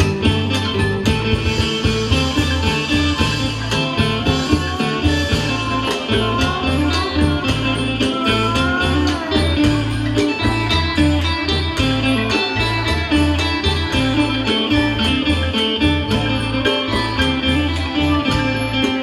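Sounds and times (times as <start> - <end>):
plucked string melody: 0.0 - 19.0
repeating bass notes: 0.0 - 19.0
steady drum beat: 0.0 - 19.0.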